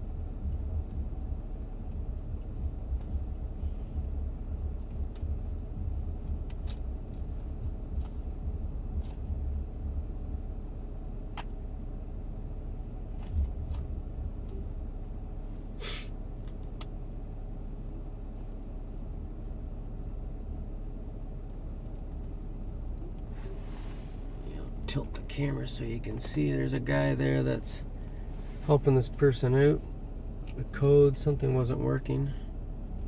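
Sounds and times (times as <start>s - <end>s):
minivan engine idling: 0.0s - 33.0s
short hiss: 15.8s - 16.1s.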